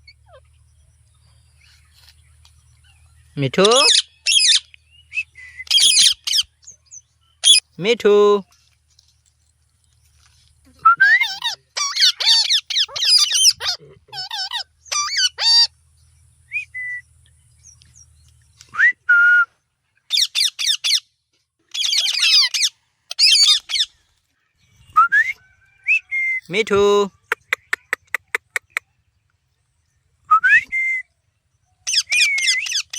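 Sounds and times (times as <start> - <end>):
parrot chattering: 11.2 - 15.7.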